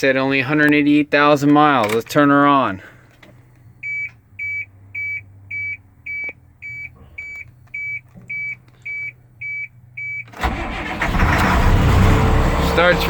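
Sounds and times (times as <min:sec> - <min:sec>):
dashboard warning chime beeping: 0:03.8 - 0:10.3
diesel engine cranking and starting: 0:10.2 - 0:13.0.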